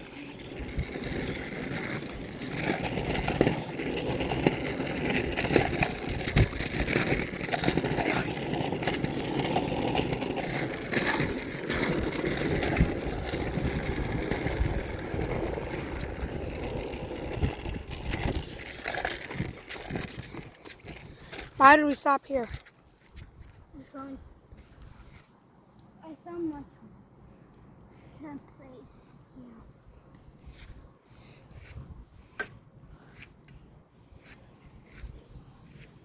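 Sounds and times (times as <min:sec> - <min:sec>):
bicycle rolling and rattling: 0:00.0 - 0:23.2.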